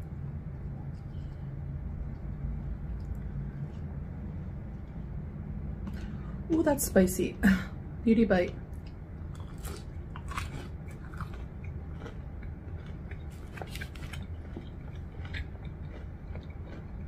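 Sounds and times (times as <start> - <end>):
steady low hum: 0.0 - 17.0
crunchy chewing: 8.7 - 17.0.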